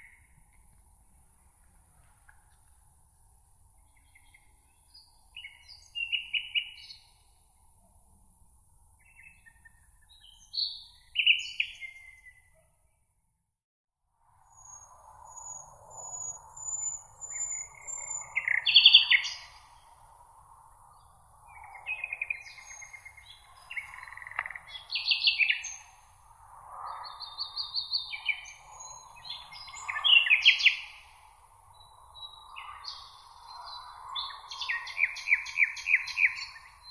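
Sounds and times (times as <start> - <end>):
songbirds singing: 3.8 - 7.4, 9.0 - 12.6, 14.5 - 20.1, 20.7 - 36.9.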